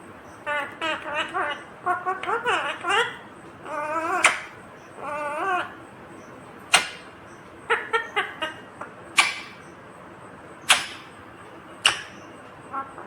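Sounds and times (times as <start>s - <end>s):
parrot chirping: 0.4s - 5.8s, 7.7s - 9.7s, 10.6s - 11.2s, 11.8s - 13.0s
parrot shrill calls: 0.4s - 5.8s, 9.2s - 9.6s, 10.7s - 11.1s.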